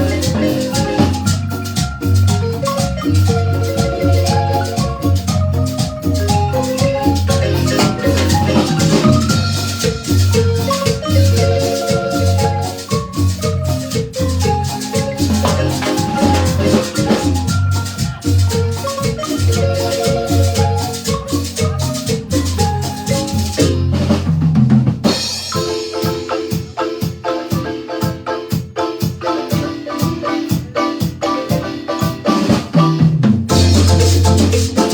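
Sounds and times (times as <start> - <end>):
steady bass beat: 0.0 - 24.5, 33.5 - 34.9
drums: 0.0 - 34.9
marimba band playing dance tune: 0.0 - 34.9.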